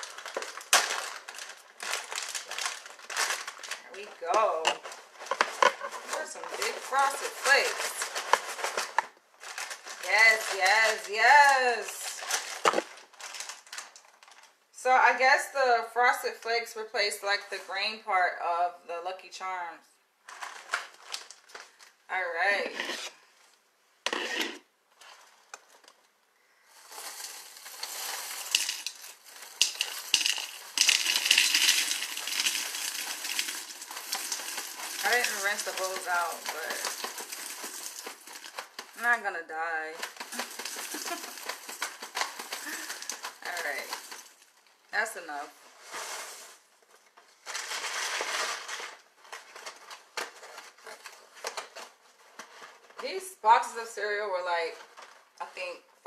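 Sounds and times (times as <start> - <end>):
dry cereal pouring into bowl: 0.0 - 3.8, 26.7 - 39.1, 40.1 - 44.5
plastic bag crinkling and rustling: 0.0 - 14.7, 20.2 - 55.4.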